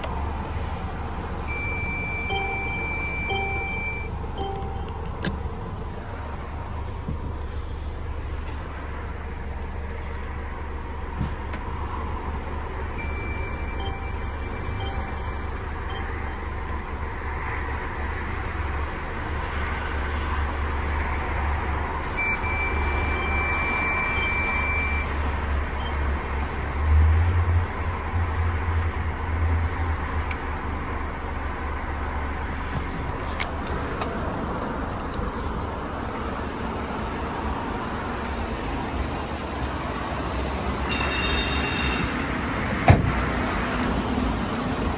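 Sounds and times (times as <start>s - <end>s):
diesel engine idling: 0.0s - 44.9s
high electronic warning tones: 1.5s - 5.0s, 13.0s - 16.4s, 22.2s - 25.2s, 40.8s - 42.6s.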